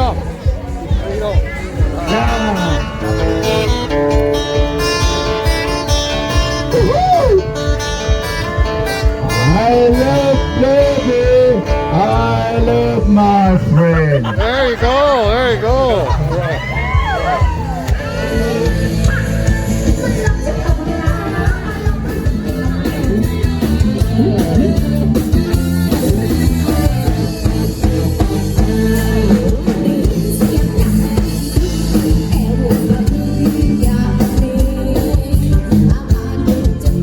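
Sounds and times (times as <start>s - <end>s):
drum kit: 0.0s - 37.0s
electric guitar: 0.0s - 37.0s
live rock band playing: 0.0s - 37.0s
person singing: 18.0s - 37.0s.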